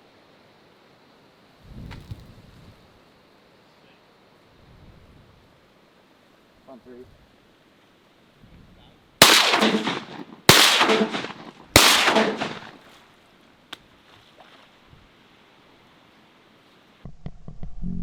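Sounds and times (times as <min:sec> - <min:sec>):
shotgun blasts: 0:09.2 - 0:13.0.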